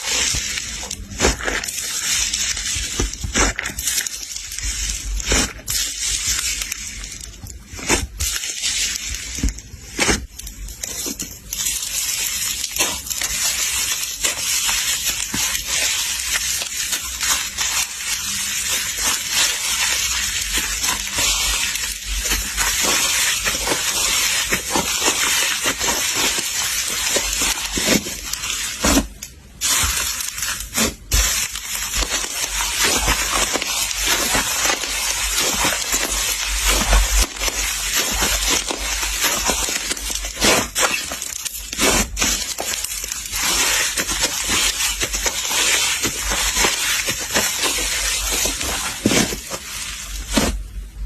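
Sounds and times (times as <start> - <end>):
slime crackling and popping: 0.0 - 51.0.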